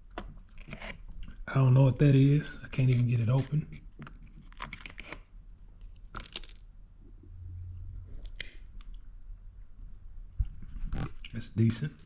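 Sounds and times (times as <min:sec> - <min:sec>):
lid crinkling and tearing: 0:02.8 - 0:06.7.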